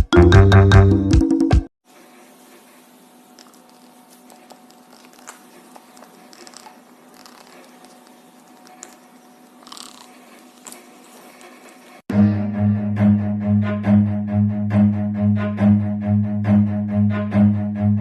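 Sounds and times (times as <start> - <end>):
music: 0.0 - 1.7, 12.1 - 18.0
faint clicks and crunches: 3.4 - 12.0.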